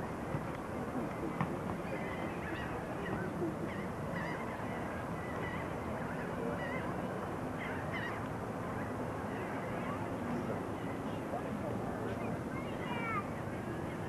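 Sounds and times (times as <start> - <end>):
steady background wash: 0.0 - 14.0
birds calling: 1.3 - 11.2.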